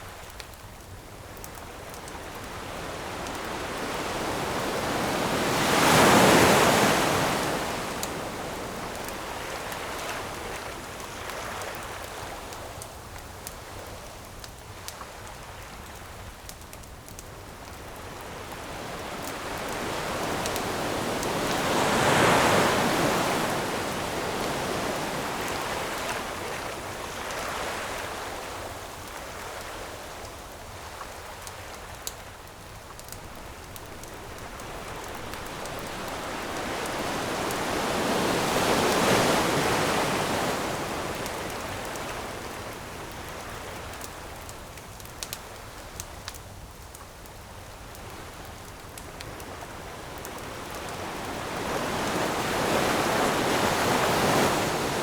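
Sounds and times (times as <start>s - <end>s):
campfire crackling: 0.0s - 55.0s
surf hiss: 1.2s - 13.1s, 17.3s - 45.0s, 47.5s - 55.0s
ocean waves breaking: 2.0s - 10.9s, 18.0s - 28.8s, 32.9s - 43.2s, 49.5s - 55.0s.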